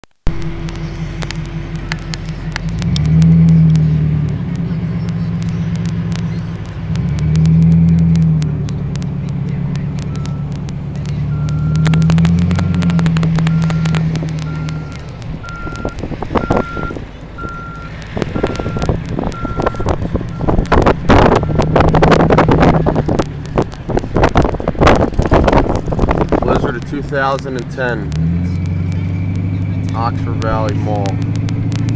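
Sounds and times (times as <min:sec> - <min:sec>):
diesel engine revving: 0:00.3 - 0:31.9
backup alarm beeping: 0:11.3 - 0:20.5.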